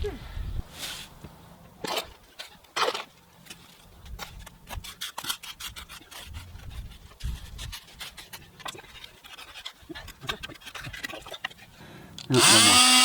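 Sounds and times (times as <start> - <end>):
hand tool scraping wet concrete: 4.2 - 11.7.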